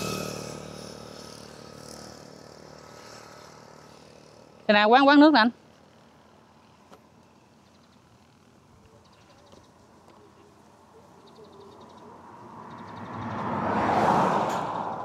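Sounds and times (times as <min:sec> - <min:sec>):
vehicle passing: 0:00.0 - 0:06.4, 0:10.6 - 0:15.0
faint chirps: 0:08.8 - 0:13.0.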